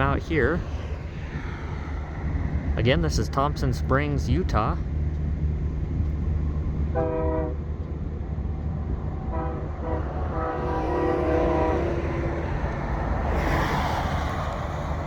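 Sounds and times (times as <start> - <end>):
locomotive air horn blasts: 6.9 - 7.6, 9.3 - 12.3.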